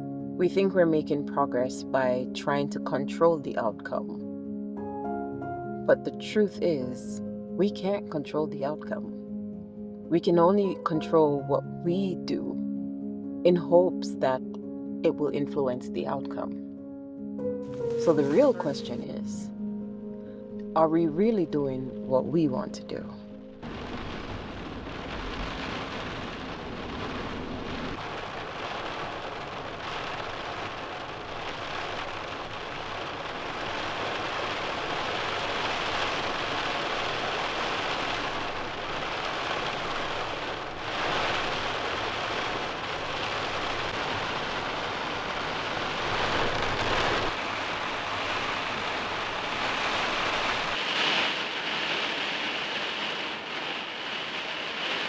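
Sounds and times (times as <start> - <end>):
steady rain falling: 17.6 - 19.0, 23.5 - 55.0.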